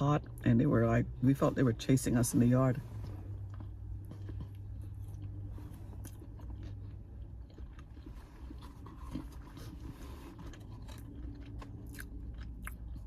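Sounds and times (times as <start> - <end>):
steady low hum: 0.0 - 13.0
person chewing food: 2.9 - 13.0.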